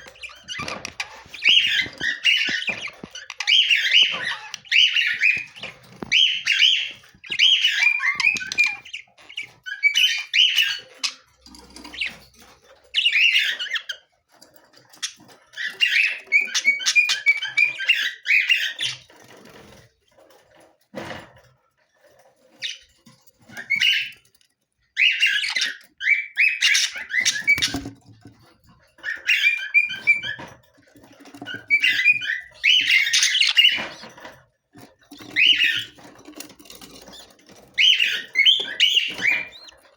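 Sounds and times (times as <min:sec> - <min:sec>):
budgerigars chattering: 0:00.0 - 0:12.2, 0:25.0 - 0:27.9, 0:31.4 - 0:34.1, 0:35.1 - 0:39.9.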